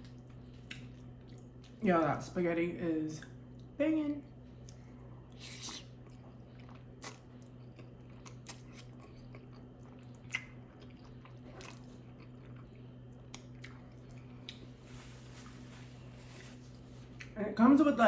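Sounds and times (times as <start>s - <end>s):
person chewing food: 0.0s - 1.8s, 4.6s - 14.9s.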